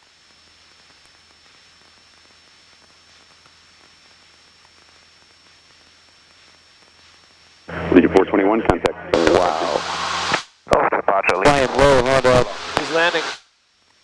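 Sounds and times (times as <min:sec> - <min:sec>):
electrical hiss: 0:00.0 - 0:14.0
low hum: 0:07.7 - 0:13.3
thin high whine: 0:07.7 - 0:13.5.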